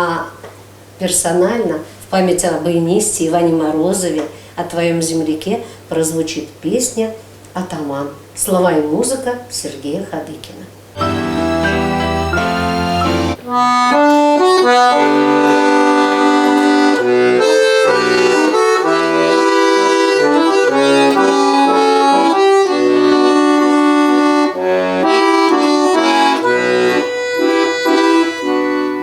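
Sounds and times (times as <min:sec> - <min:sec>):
accordion playing: 0:11.0 - 0:29.0.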